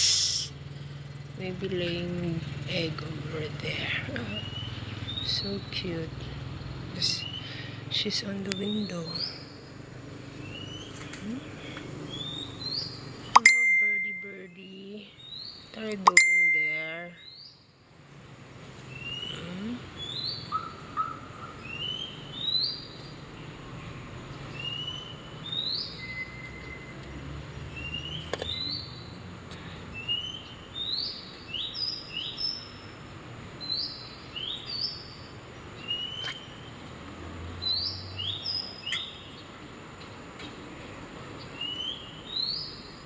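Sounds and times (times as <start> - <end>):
bird chirping: 4.1 - 6.0, 10.4 - 17.7, 18.9 - 27.0, 27.6 - 29.2, 29.9 - 33.0, 33.6 - 39.6, 41.4 - 43.0.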